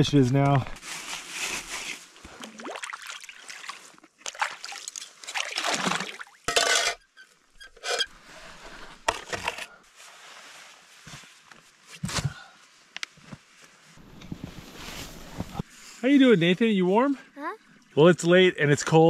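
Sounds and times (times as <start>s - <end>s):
water splashing and sloshing: 2.0s - 7.2s.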